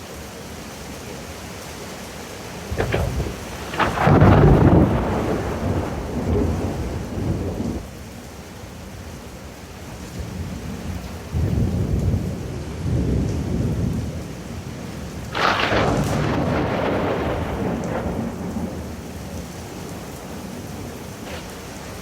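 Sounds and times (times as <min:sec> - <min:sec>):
steady rain: 0:00.0 - 0:22.0
thunder rumbling and cracking: 0:02.6 - 0:07.9, 0:10.8 - 0:22.0.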